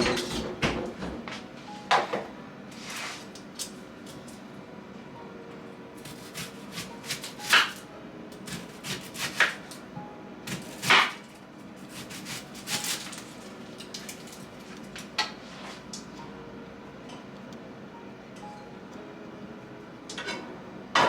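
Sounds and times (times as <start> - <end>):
knife scraping: 11.8 - 13.2.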